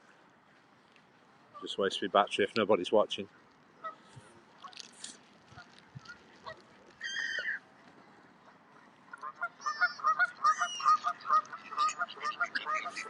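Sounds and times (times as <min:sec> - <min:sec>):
flock of birds calling: 0:05.5 - 0:07.6, 0:08.5 - 0:13.0.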